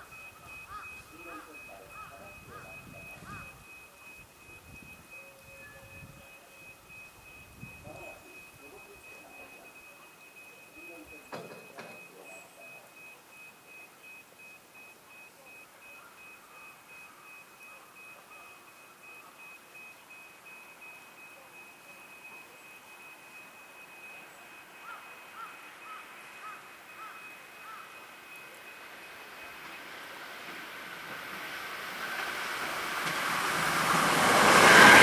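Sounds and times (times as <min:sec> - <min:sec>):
faint high-pitched tone: 0:00.0 - 0:29.8
faint chirps: 0:00.0 - 0:30.0
distant electric train approaching: 0:00.0 - 0:35.0
quiet outdoor noise: 0:00.0 - 0:35.0.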